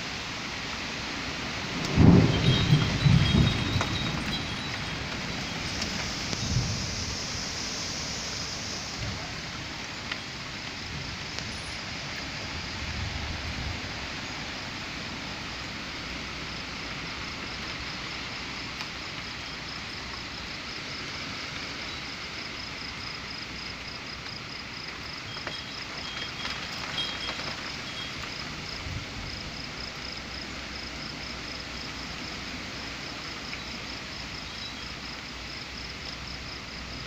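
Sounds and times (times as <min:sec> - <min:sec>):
steady rain falling: 0:00.0 - 0:37.0
thunder rumbling: 0:01.3 - 0:18.4.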